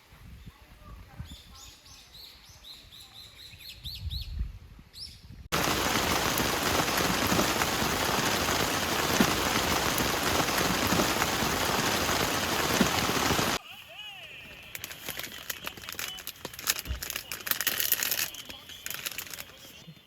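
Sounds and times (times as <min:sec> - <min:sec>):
heavy rain: 0:05.5 - 0:13.6.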